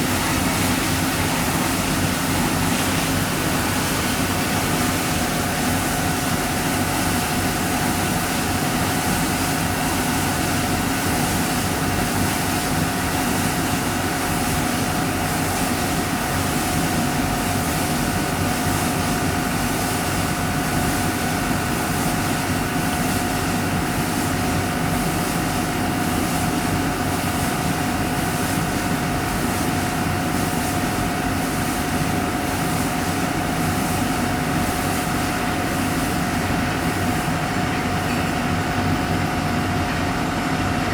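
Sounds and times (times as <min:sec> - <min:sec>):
drilling machine engine drone: 0:00.0 - 0:40.9
machine whine: 0:36.2 - 0:40.9.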